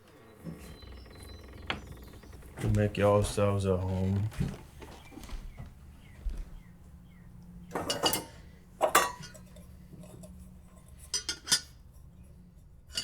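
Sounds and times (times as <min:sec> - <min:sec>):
dishes and cutlery clattering: 0:07.7 - 0:11.8.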